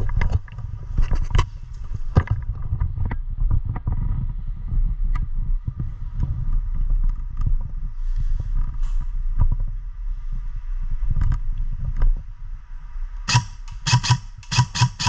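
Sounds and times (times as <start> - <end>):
wind rumble: 0.0 - 14.7
sharp clicks and crackles: 13.3 - 15.0.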